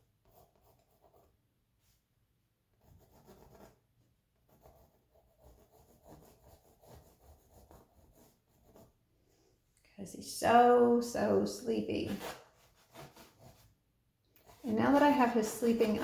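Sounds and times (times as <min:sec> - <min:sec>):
pencil rubbing on canvas: 0:00.2 - 0:01.3, 0:02.8 - 0:03.8, 0:04.4 - 0:09.0, 0:12.0 - 0:13.8, 0:14.4 - 0:16.0.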